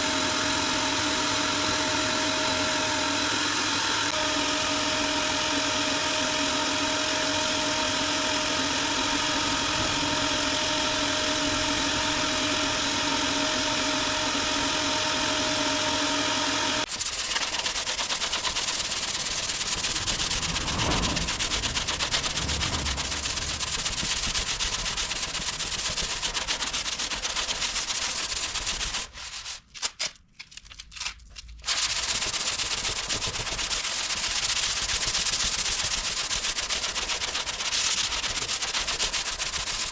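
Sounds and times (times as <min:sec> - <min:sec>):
power tool motor whine: 0:00.0 - 0:27.0
sanding rasp on filler: 0:04.2 - 0:29.7, 0:31.7 - 0:39.9.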